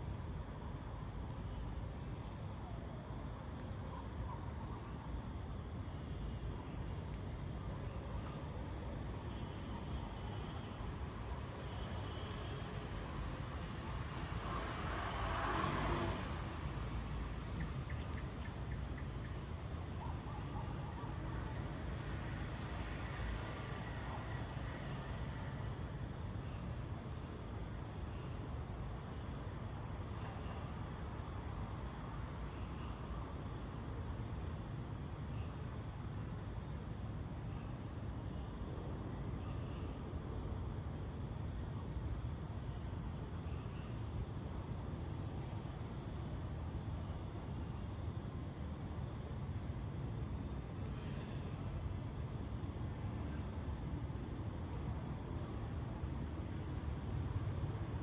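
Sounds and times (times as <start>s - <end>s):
cricket trilling: 3.5s - 25.6s.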